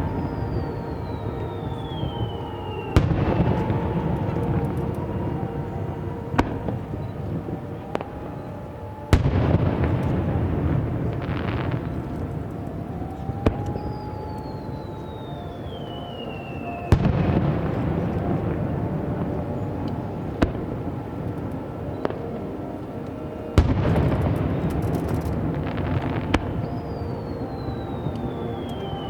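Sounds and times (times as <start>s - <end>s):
fireworks bangs with rumbling echo: 0.0s - 8.2s, 9.1s - 16.0s, 16.9s - 22.4s, 23.5s - 29.0s
falling firework whistle: 0.0s - 29.0s
fireworks crackling: 0.0s - 29.0s.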